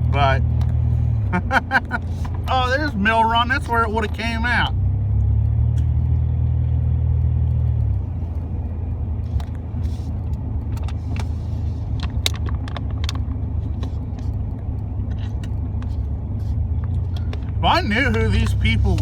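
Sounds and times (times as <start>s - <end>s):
truck engine and road drone: 0.0s - 19.0s
light rattles and clicks: 10.3s - 19.0s.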